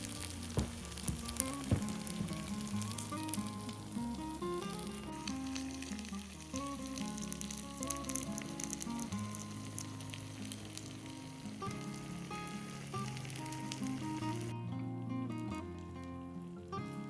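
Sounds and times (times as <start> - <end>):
food sizzling: 0.0 - 14.6
soft background music: 0.0 - 17.0.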